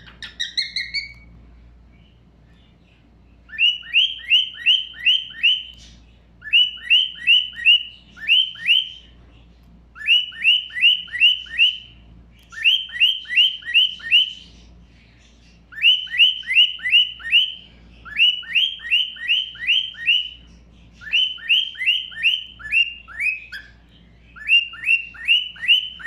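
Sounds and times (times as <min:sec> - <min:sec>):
bird whistled calls: 0:00.0 - 0:01.3, 0:03.5 - 0:09.1, 0:10.0 - 0:14.7, 0:15.7 - 0:26.0.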